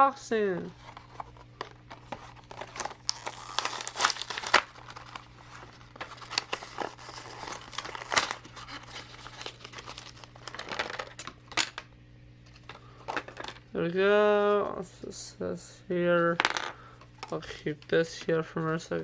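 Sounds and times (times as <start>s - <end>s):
packaging crinkling and tearing: 0.8s - 11.4s.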